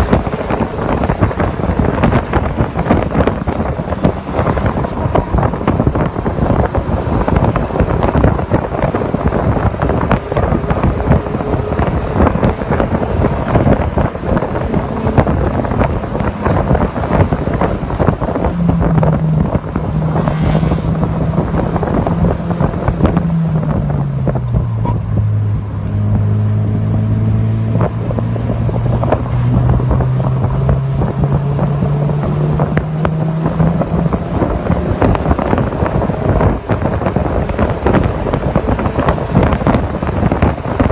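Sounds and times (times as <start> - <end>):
car engine running hard: 0.0 - 40.9
wind buffeting microphone: 0.0 - 40.9.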